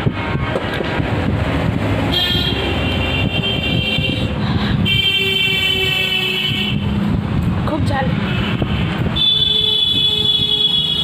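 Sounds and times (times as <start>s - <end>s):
road traffic: 0.0s - 11.0s
vehicle horn blast: 2.1s - 6.9s, 8.4s - 11.0s.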